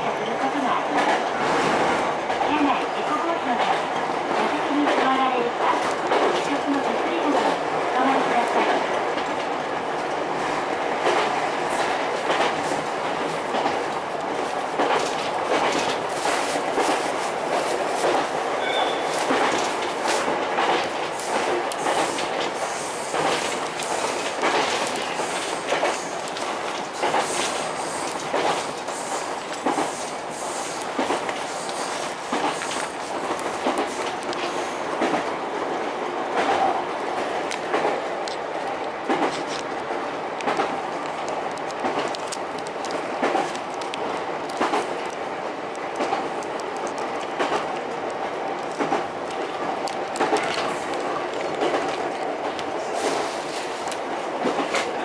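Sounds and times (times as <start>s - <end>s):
train interior rumble: 0.0s - 55.0s
wheels clicking over rail joints: 0.2s - 55.0s.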